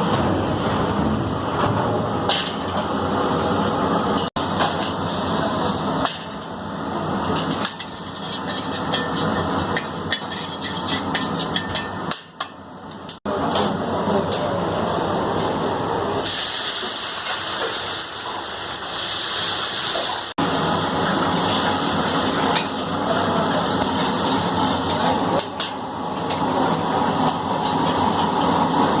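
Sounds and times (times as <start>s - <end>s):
tomatoes sizzling in a pan: 16.2s - 25.4s.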